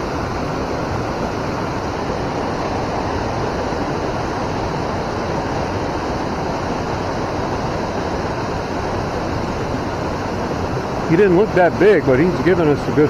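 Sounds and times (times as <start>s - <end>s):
flowing river water: 0.0s - 13.0s.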